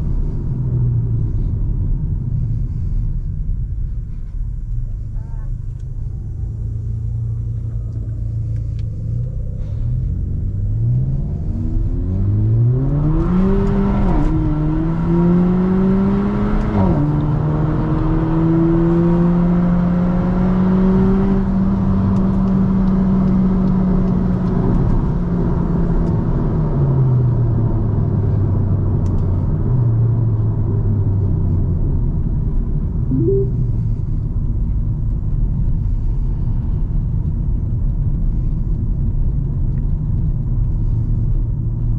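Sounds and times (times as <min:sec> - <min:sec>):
road and tyre rumble: 0:00.0 - 0:41.9
car engine accelerating: 0:04.2 - 0:36.2.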